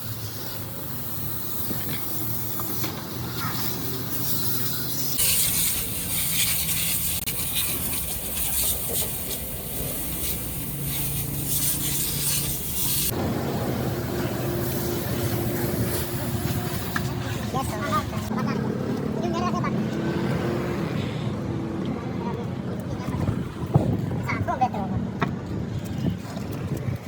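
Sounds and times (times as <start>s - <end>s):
loud spraying hiss: 0.0s - 18.3s
steady machine hum: 12.0s - 18.3s.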